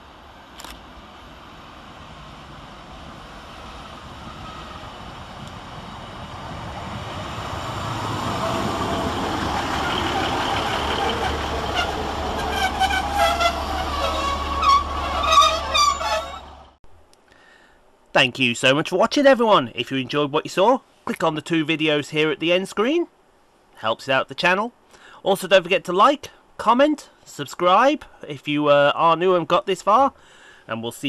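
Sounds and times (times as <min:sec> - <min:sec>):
train rumble and wheel noise: 0:00.0 - 0:16.8
train brakes squealing: 0:03.8 - 0:05.0, 0:08.3 - 0:16.7.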